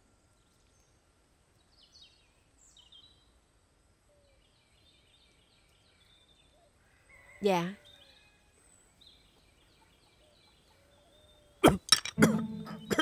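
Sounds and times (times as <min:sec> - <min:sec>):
faint background hiss: 0:00.0 - 0:07.0.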